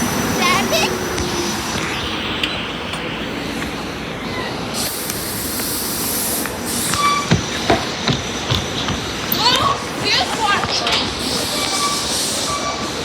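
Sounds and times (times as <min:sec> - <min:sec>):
electric train hissing: 0:00.0 - 0:13.0
short high squeaks: 0:06.7 - 0:07.8, 0:11.0 - 0:13.0.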